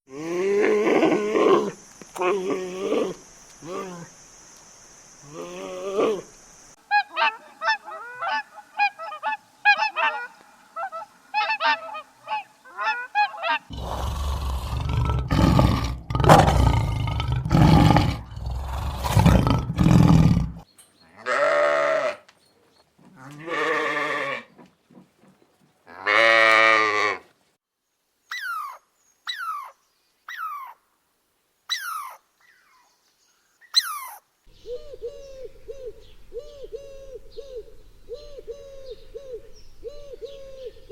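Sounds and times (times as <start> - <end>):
long animal calls: 6.9 - 20.6
loud rough animal calls: 12.8 - 20.6.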